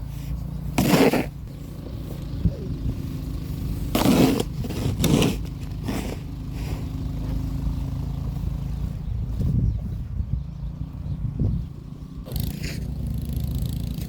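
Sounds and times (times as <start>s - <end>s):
shovel scraping snow: 0.0s - 1.9s, 3.8s - 7.0s, 12.3s - 13.0s
engine running: 0.0s - 14.0s.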